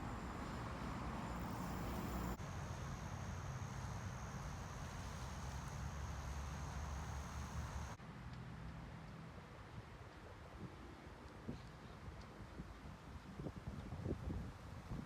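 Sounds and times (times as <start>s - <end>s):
high insect trill: 0.0s - 8.0s.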